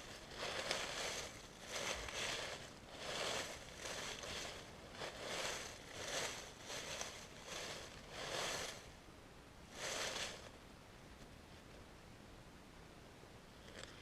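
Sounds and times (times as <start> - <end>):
footsteps crunching on dry leaves: 0.0 - 8.9, 9.7 - 10.5.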